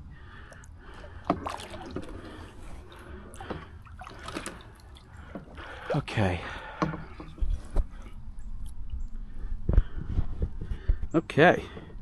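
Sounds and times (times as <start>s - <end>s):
paddle splashing in water: 1.0s - 8.0s
light knocks on canoe: 6.8s - 7.9s.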